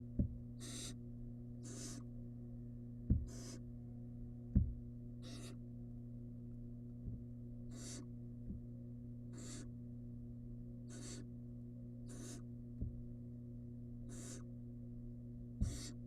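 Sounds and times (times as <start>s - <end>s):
steady low hum: 0.0s - 16.0s
dull thumps: 0.1s - 0.4s, 3.0s - 3.6s, 4.5s - 4.9s, 7.0s - 7.3s, 12.8s - 13.1s, 15.6s - 16.0s
owl nestling hissing calls: 0.6s - 1.0s, 1.6s - 2.1s, 3.3s - 3.6s, 5.2s - 5.6s, 7.7s - 8.1s, 9.3s - 9.7s, 10.9s - 11.3s, 12.1s - 12.5s, 14.1s - 14.5s, 15.6s - 16.0s.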